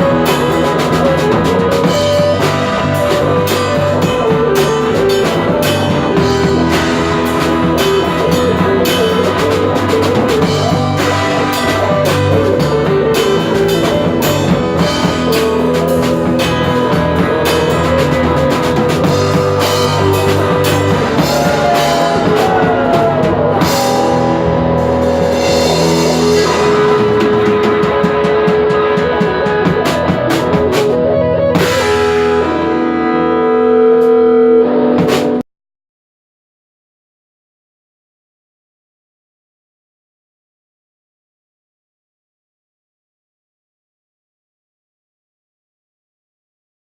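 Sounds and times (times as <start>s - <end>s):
rock band playing: 0.0s - 35.4s.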